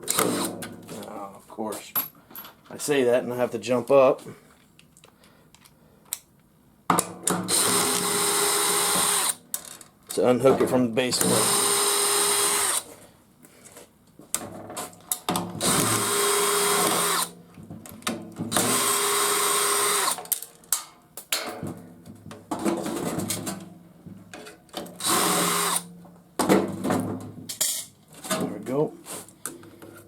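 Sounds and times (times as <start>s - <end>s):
power drill motor whine: 7.5s - 9.4s, 11.3s - 12.8s, 15.6s - 17.3s, 18.5s - 20.2s, 25.0s - 25.8s.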